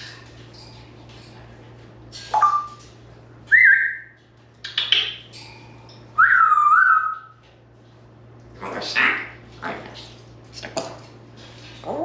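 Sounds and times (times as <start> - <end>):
parrot whistling: 3.5 - 4.1, 6.2 - 7.3.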